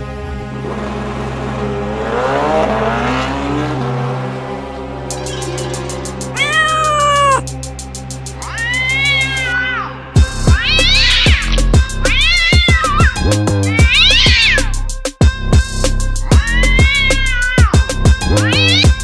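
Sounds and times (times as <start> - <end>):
background music with ticking beat: 5.1 - 9.5, 10.2 - 19.0
cat meowing: 6.4 - 7.4, 10.6 - 13.0, 13.9 - 14.6.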